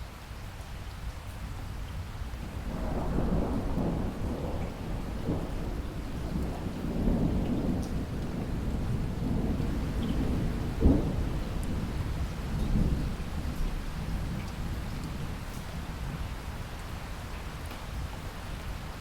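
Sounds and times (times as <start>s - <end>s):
heavy rain: 0.0s - 19.0s
thunder rumbling: 2.6s - 16.1s.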